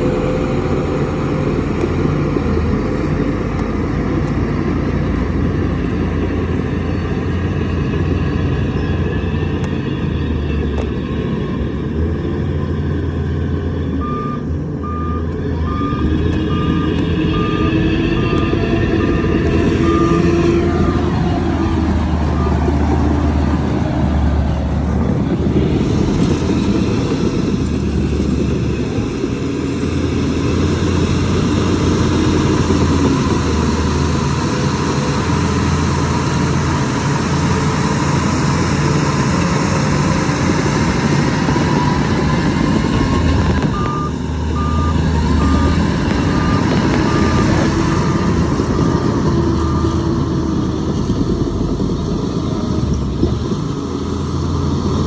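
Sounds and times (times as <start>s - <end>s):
diesel earthmoving machinery running: 0.0s - 55.0s
reversing alarm beeping: 14.0s - 23.4s, 41.4s - 50.3s.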